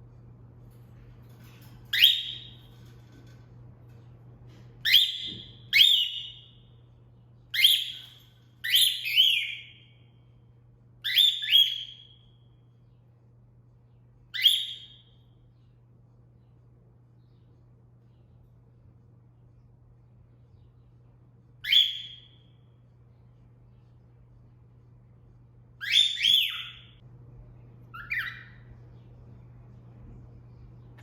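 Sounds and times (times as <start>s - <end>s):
cockatiel whistling: 1.9s - 2.6s, 4.8s - 6.6s, 7.5s - 9.8s, 11.0s - 12.2s, 14.3s - 15.2s, 21.6s - 22.4s, 25.8s - 27.0s, 27.9s - 28.7s.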